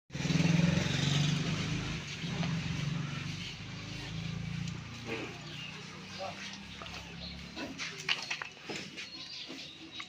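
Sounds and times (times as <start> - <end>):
tractor diesel engine running: 0.1 - 7.9.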